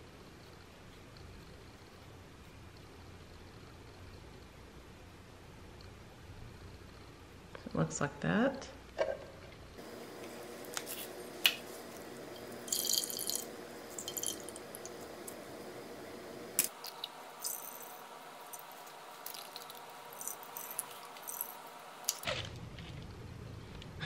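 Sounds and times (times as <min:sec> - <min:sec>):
water dripping into glass bowl: 0:12.6 - 0:15.0.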